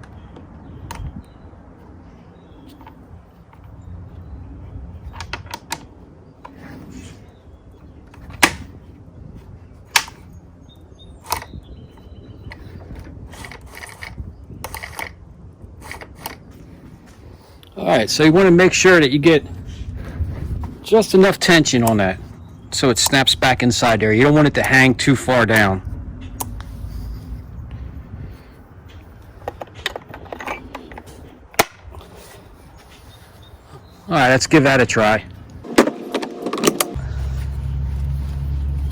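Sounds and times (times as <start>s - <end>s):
sharp metal clicks and knocks: 8.1s - 8.8s, 9.9s - 10.4s
clicks and scrapes of handled parts: 11.2s - 15.2s, 15.8s - 17.8s, 28.9s - 33.4s.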